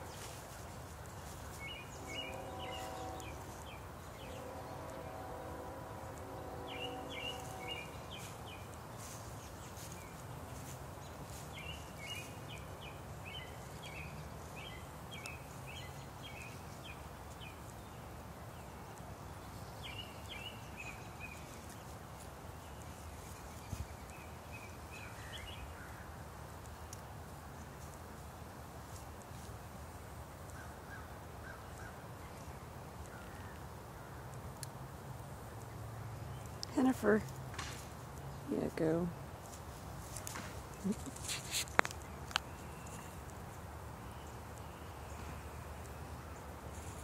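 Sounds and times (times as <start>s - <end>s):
steady pitched hum: 0.0s - 10.2s
faint background noise: 0.0s - 47.0s.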